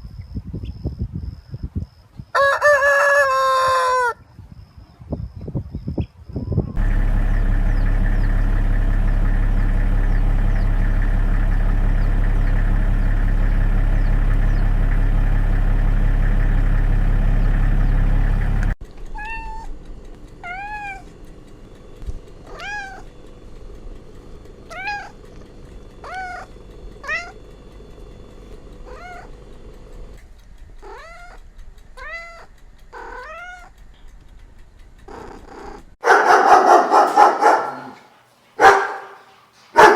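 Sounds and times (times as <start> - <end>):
steady low drone: 6.8 - 18.8
cat meowing: 20.4 - 21.0, 22.5 - 23.0, 24.7 - 25.2, 26.0 - 27.3, 28.9 - 29.3, 32.0 - 33.7.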